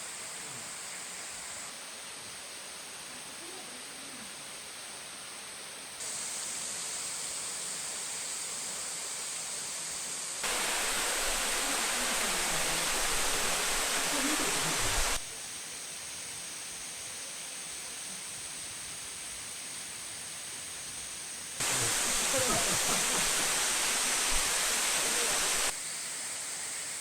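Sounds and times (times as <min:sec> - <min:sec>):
waterfall rushing: 0:10.4 - 0:15.3, 0:21.6 - 0:25.8.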